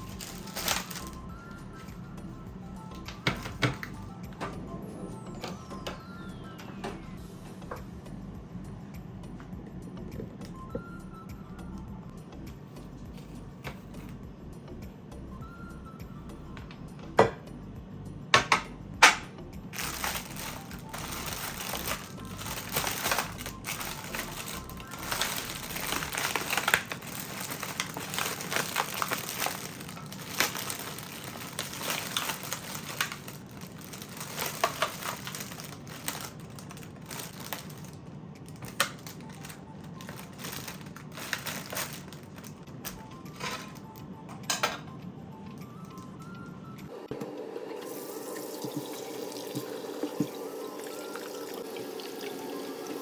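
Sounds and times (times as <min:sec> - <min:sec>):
thin material crinkling: 0:00.0 - 0:01.2, 0:19.8 - 0:43.8
soft background music: 0:00.0 - 0:53.0.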